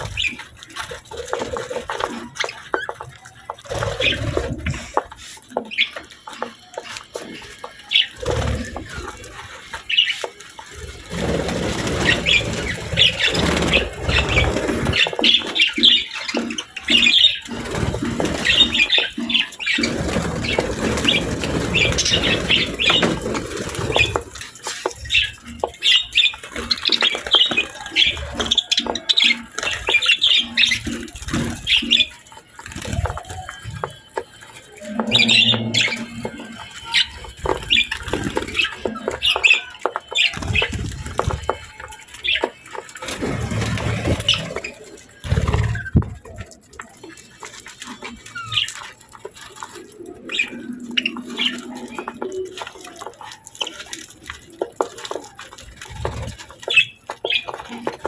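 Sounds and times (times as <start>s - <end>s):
wings fluttering: 0.0s - 58.0s
budgerigars chirping: 34.9s - 41.3s.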